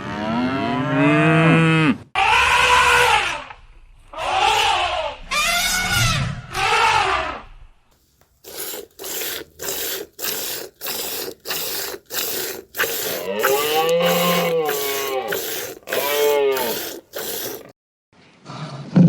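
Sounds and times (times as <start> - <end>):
animal rasping breaths: 8.4 - 17.7.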